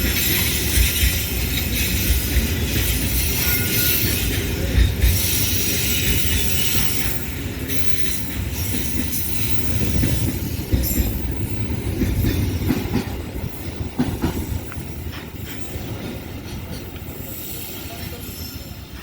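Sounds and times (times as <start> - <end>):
train rumbling on rails: 0.0 - 19.0.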